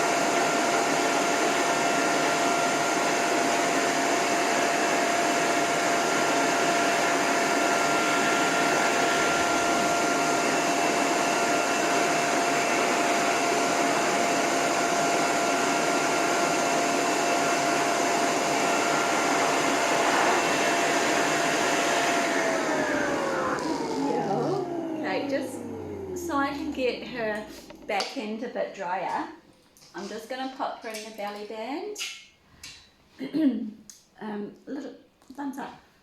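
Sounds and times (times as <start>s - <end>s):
hose dryer air rushing: 0.0s - 28.0s
dryer motor whine: 0.0s - 28.4s.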